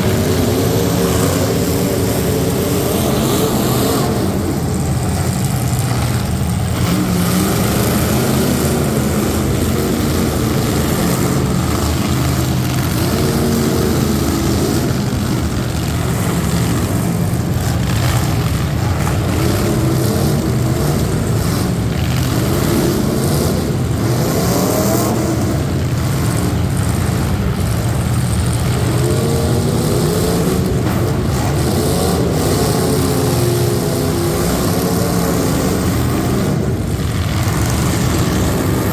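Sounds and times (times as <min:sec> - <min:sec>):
truck engines revving: 0:00.0 - 0:38.9.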